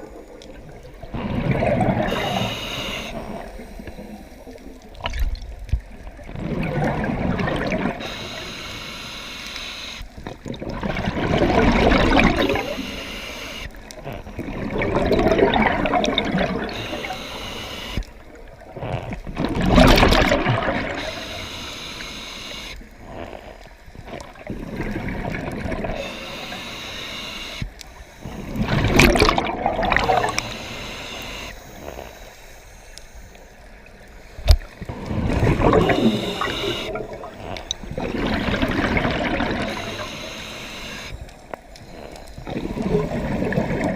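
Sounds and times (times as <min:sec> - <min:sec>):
water gurgling and bubbling: 0:00.0 - 0:08.6, 0:10.2 - 0:22.1, 0:22.8 - 0:26.6, 0:28.2 - 0:32.2, 0:33.7 - 0:43.9.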